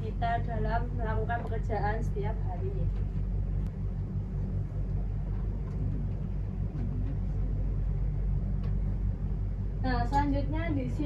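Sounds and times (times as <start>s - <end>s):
constant hum: 0.0s - 11.0s
low background rumble: 0.0s - 11.0s.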